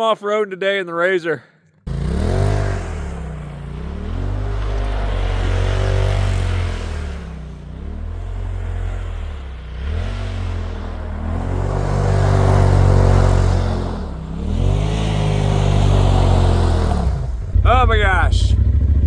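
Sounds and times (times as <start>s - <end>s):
engine revving under throttle: 1.9s - 19.0s.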